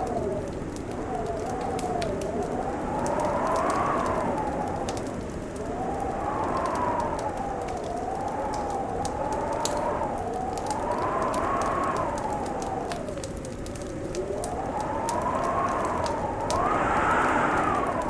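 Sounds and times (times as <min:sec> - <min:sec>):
moaning wind howl: 0:00.0 - 0:18.0
wood fire crackling and popping: 0:00.0 - 0:18.0.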